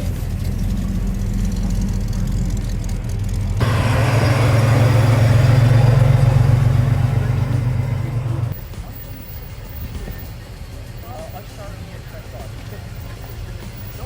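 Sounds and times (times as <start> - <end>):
car exhaust rumble: 0.0 - 8.6.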